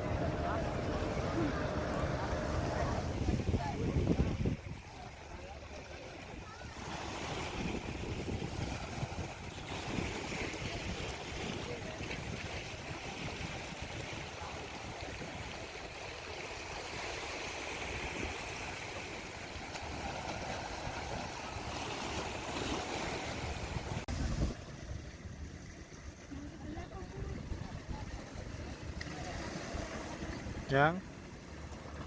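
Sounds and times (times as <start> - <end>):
wind buffeting microphone: 0.0 - 15.7, 23.3 - 25.5, 26.3 - 30.7
sea surf: 0.0 - 32.0.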